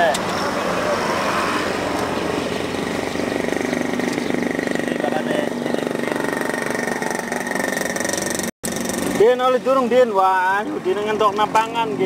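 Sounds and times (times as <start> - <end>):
motorcycle engine idling: 2.7 - 9.5.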